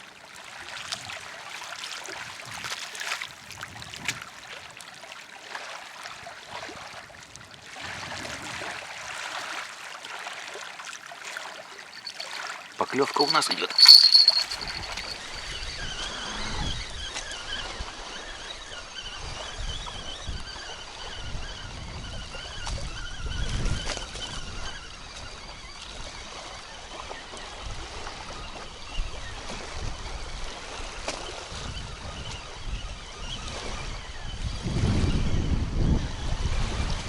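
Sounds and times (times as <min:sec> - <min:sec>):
water lapping and trickling: 0:07.8 - 0:15.2.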